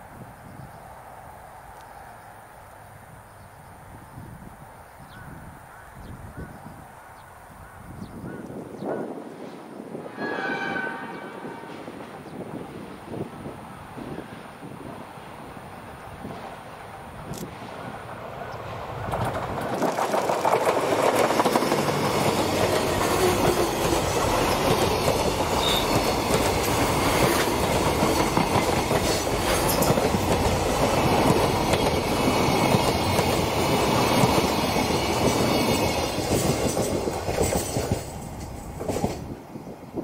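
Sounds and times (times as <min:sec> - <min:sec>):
diesel locomotive passing: 0:09.3 - 0:40.0
flatcars clattering over rail joints: 0:19.0 - 0:39.3.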